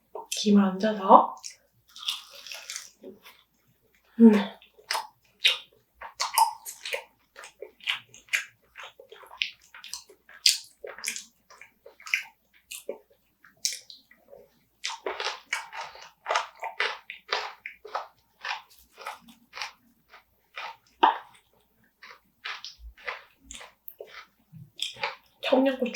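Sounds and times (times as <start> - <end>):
wet chewing and lip smacking: 1.4 - 25.9.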